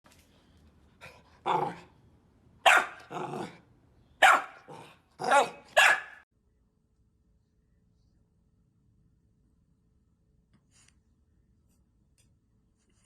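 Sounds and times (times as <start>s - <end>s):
dog barking: 2.6s - 3.6s, 4.2s - 6.2s.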